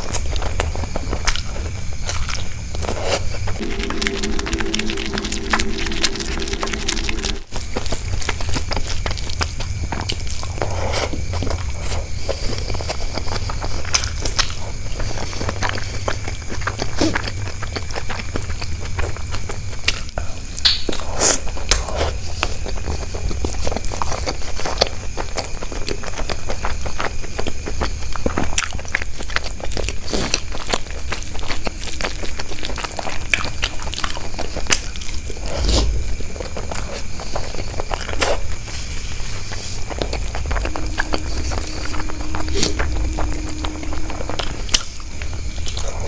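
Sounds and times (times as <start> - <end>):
steady low hum: 2.6 - 8.1, 38.6 - 46.0.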